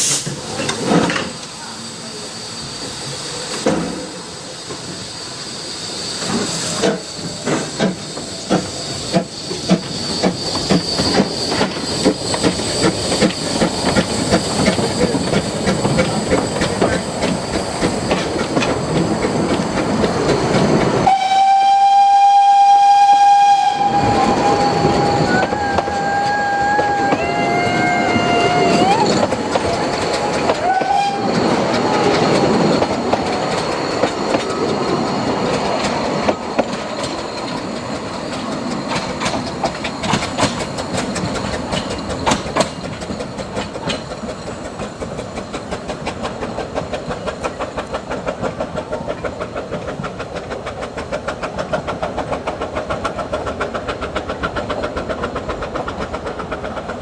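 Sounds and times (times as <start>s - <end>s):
steam locomotive exhaust beats: 0.0s - 57.0s
train wheel clatter: 0.0s - 57.0s
steam whistle: 21.0s - 29.3s, 30.4s - 32.2s.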